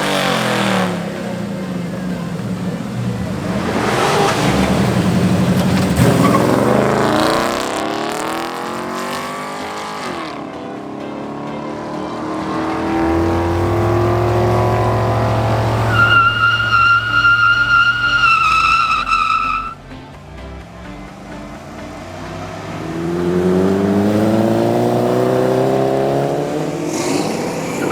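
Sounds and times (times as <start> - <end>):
car engine revving: 0.0 - 27.9
tire squeal: 3.2 - 7.8, 12.6 - 19.8, 26.8 - 27.9.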